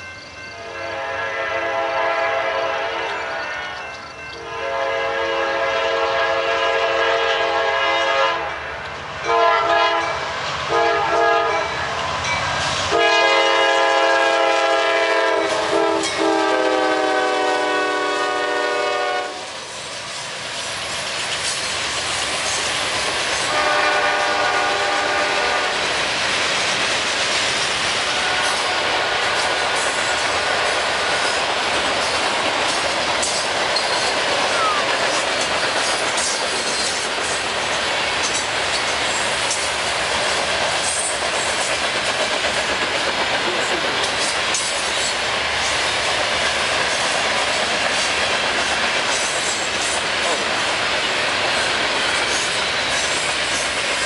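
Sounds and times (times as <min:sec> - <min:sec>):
train rolling on rails: 0:00.0 - 0:54.0
locomotive horn blasts: 0:00.6 - 0:03.8, 0:04.4 - 0:08.6, 0:09.3 - 0:11.8, 0:12.9 - 0:19.5, 0:23.5 - 0:25.8, 0:28.1 - 0:29.5.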